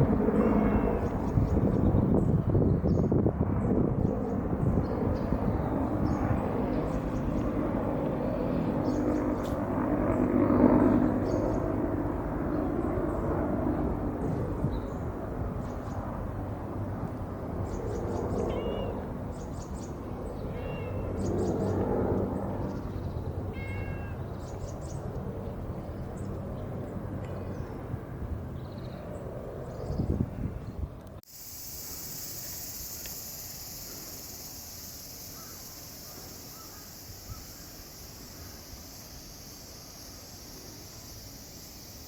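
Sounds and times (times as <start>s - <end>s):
cat meowing: 23.6s - 24.2s.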